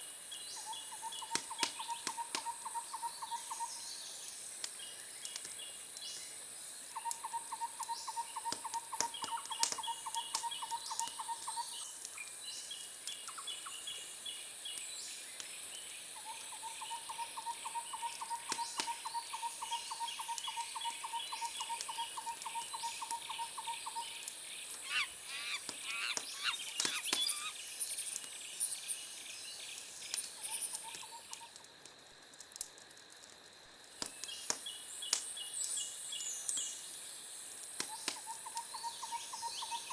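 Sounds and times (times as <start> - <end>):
sweeping bird calls: 0.6 - 4.1, 16.2 - 27.8
wood fire crackling and popping: 1.2 - 2.8, 4.2 - 16.0, 19.8 - 38.7
rapid chirping trills: 16.5 - 28.1
high insect buzz: 22.9 - 27.9.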